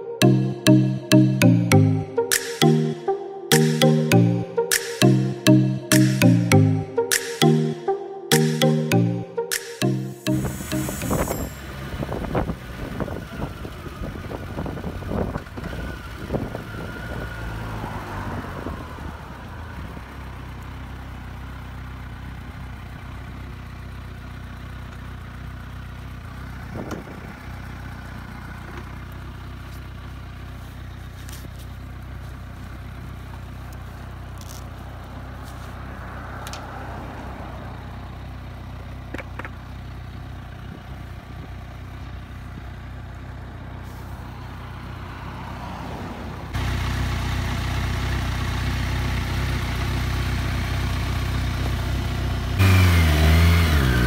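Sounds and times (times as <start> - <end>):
wind noise on microphone: 10.9 - 17.2
motorcycle engine idling: 19.0 - 36.0, 37.7 - 43.8, 46.6 - 53.0.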